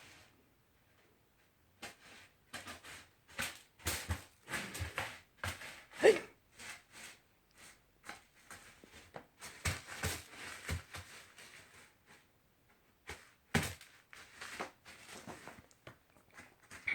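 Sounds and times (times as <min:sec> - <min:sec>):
cat litter scraping and rustling: 0:01.8 - 0:12.3, 0:13.0 - 0:16.9.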